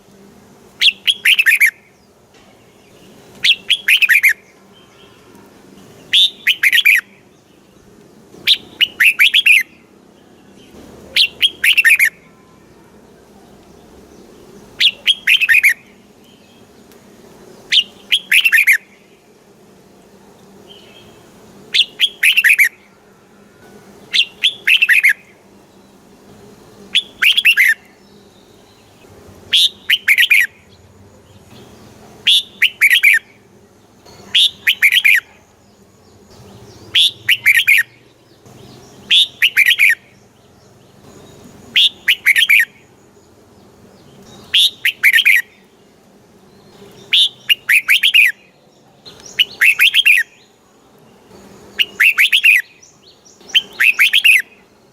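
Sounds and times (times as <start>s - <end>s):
bird singing warbling phrase: 3.0s - 5.2s, 6.0s - 7.2s, 8.5s - 9.8s, 10.6s - 12.8s, 14.8s - 16.7s, 17.6s - 19.0s, 20.7s - 23.0s, 24.0s - 25.3s, 26.9s - 33.3s, 34.1s - 35.6s, 36.4s - 42.9s, 44.1s - 45.8s, 46.6s - 50.6s, 51.7s - 54.6s.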